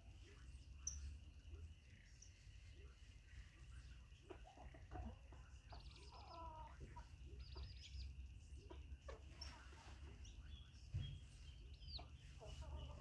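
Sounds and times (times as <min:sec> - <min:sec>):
chickens clucking: 0:04.0 - 0:10.2, 0:10.9 - 0:13.0.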